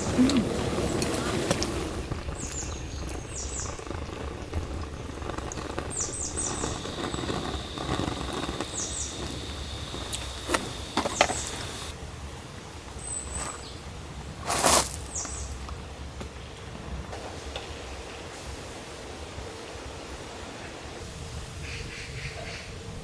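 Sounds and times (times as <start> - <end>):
small birds chirping: 0.0 - 12.0, 15.0 - 15.6.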